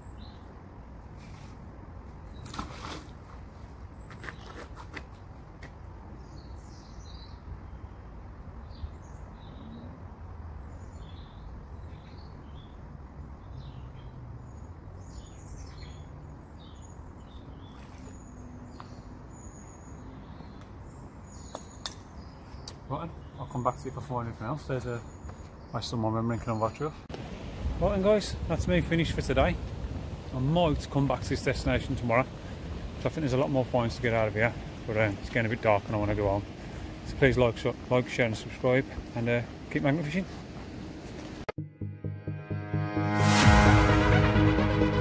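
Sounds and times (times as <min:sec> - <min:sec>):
small birds chirping: 0:06.1 - 0:27.1.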